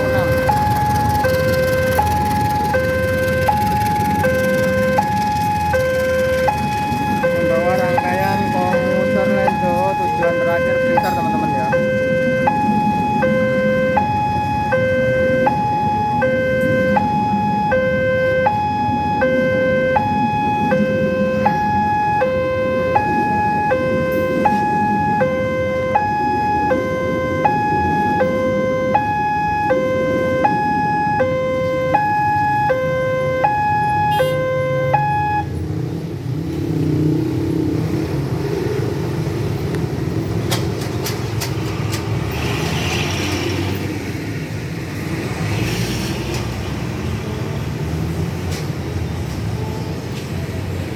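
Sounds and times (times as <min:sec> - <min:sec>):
level crossing alarm ding-dong: 0:00.0 - 0:26.1.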